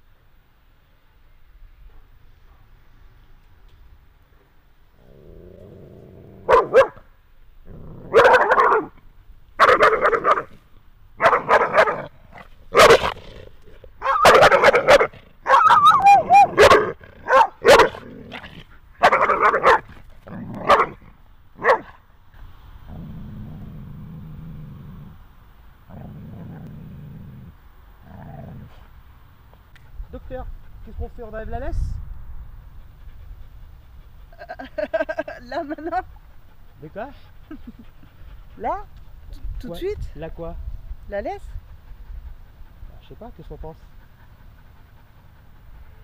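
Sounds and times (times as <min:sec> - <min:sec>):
dog growling: 0:05.0 - 0:06.7, 0:07.6 - 0:09.0, 0:11.2 - 0:21.2, 0:22.9 - 0:25.2, 0:25.9 - 0:28.9
dog barking: 0:06.5 - 0:07.0, 0:08.1 - 0:09.0, 0:09.6 - 0:10.5, 0:11.2 - 0:12.1, 0:12.7 - 0:13.2, 0:14.0 - 0:18.0, 0:19.0 - 0:19.9, 0:20.6 - 0:21.0, 0:21.6 - 0:22.0.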